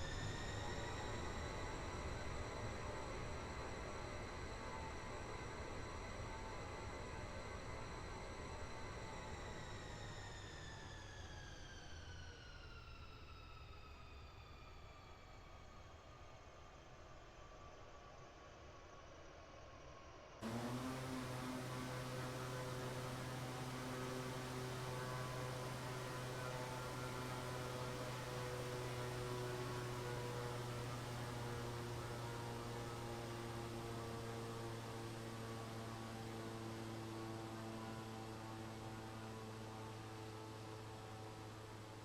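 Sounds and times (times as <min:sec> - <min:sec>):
aircraft engines humming: 0:20.4 - 0:42.0.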